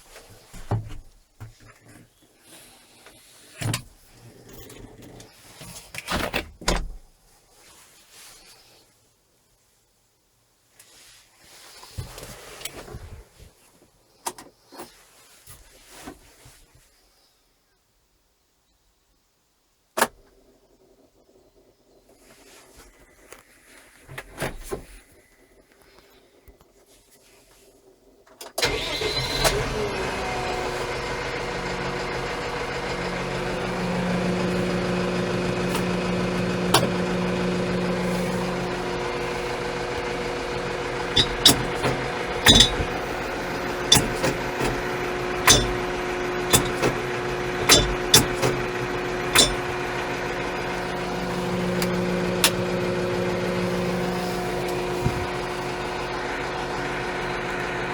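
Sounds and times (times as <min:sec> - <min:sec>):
tractor diesel engine idling: 0:28.6 - 0:57.9
sharp clicks and clunks: 0:30.9 - 0:57.9.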